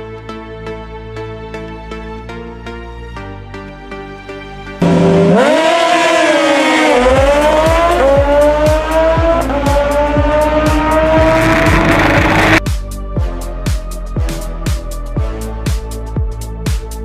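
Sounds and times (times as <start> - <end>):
motorcycle engine revving hard: 4.8 - 12.6
electronic music with kick drum: 4.8 - 17.0.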